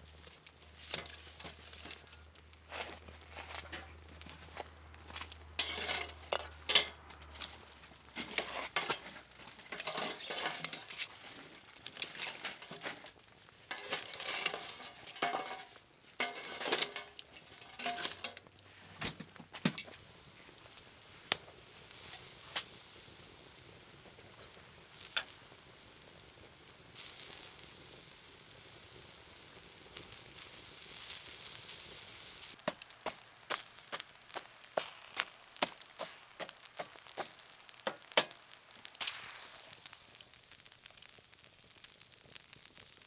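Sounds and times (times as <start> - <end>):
metal utensils clinking on cookware: 0.3 - 2.2, 5.6 - 7.6, 8.2 - 11.2, 11.8 - 13.1, 13.7 - 18.4.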